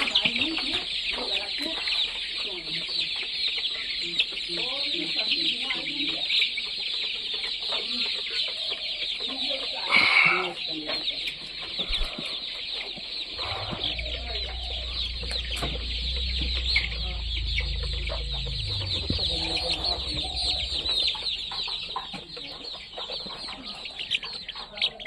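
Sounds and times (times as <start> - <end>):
chickens chirping: 0.0 - 25.0
low rumble: 13.4 - 21.4.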